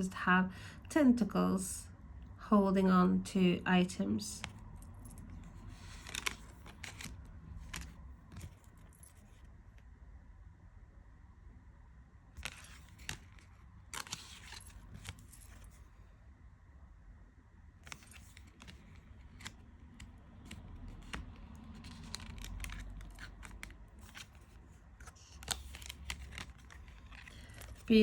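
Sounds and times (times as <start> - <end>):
cards clicking and sliding: 4.4 - 9.5, 12.4 - 15.8, 17.8 - 28.0.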